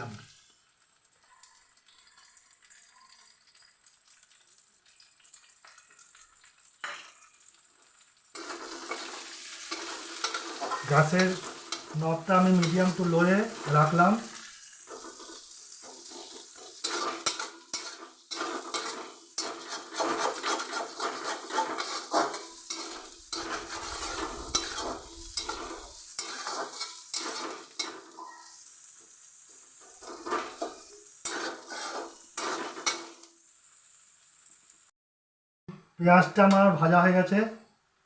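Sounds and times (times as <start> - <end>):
onions sizzling in oil: 0.0 - 34.9
utensil scraping pan: 8.4 - 28.4, 29.8 - 33.3.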